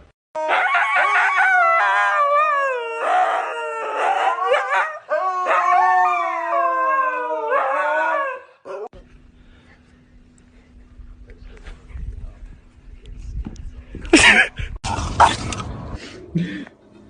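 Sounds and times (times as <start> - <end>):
dog howling: 0.4 - 8.9.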